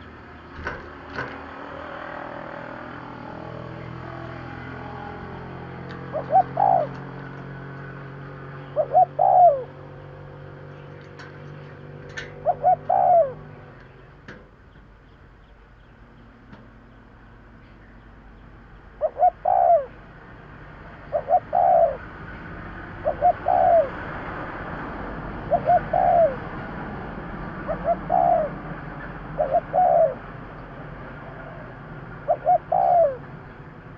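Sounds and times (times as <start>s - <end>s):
dove cooing: 1.6s - 13.8s, 19.0s - 20.0s, 20.8s - 24.6s, 25.2s - 33.7s.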